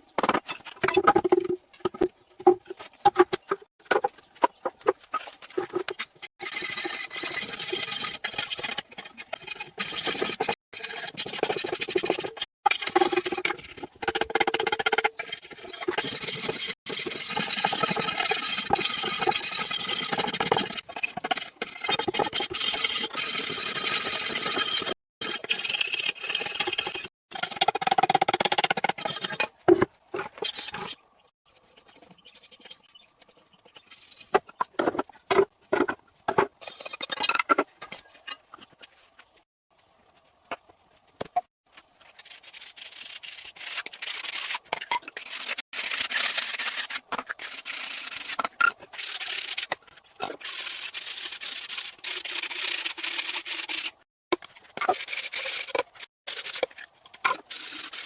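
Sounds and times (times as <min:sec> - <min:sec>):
sawing or rasping wood: 0:45.2 - 0:54.0.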